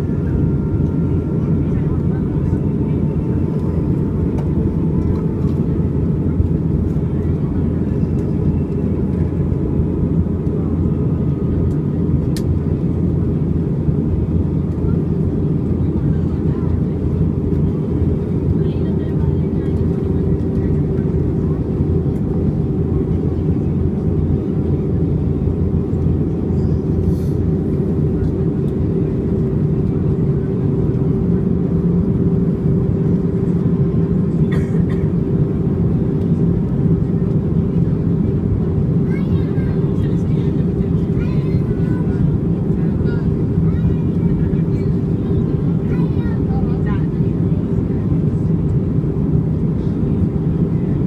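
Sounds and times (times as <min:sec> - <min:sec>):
airplane cabin rumble: 0:00.0 - 0:51.0
constant hum: 0:00.0 - 0:51.0.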